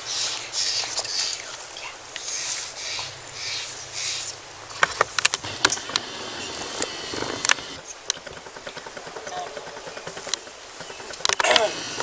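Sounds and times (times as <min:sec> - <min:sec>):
soft rustling swishes: 0:00.0 - 0:05.2.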